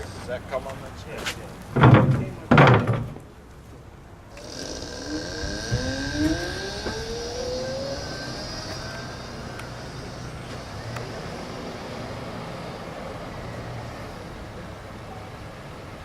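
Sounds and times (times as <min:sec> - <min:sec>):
electric motor whine: 0:04.3 - 0:14.9.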